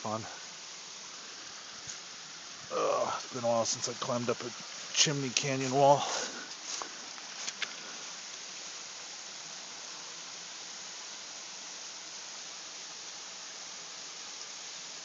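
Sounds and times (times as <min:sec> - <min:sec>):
waterfall rushing: 0:02.1 - 0:07.1.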